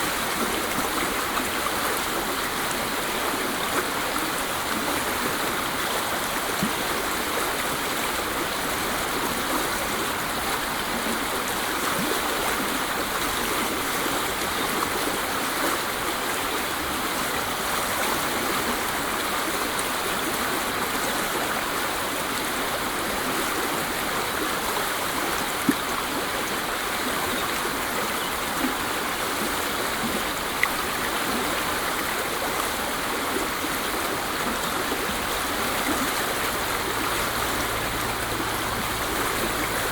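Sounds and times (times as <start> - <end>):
faint water splashes: 0.0 - 39.9
waterfall rushing: 29.8 - 39.9.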